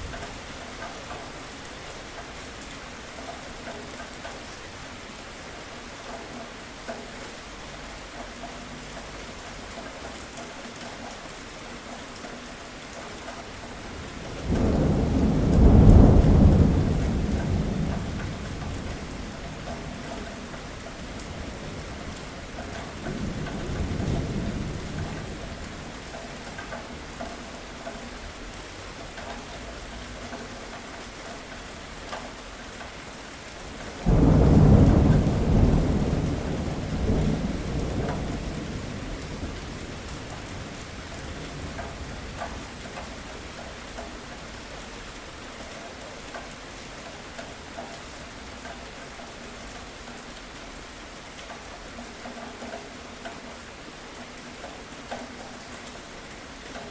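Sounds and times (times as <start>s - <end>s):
steady rain falling: 0.0s - 56.9s
thunder rolling: 14.2s - 20.0s, 34.0s - 42.8s
loud thunder clap: 34.1s - 40.7s.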